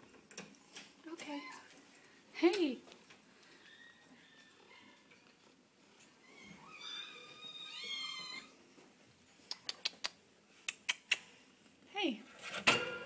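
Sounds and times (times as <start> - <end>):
cat meowing: 6.2 - 8.5.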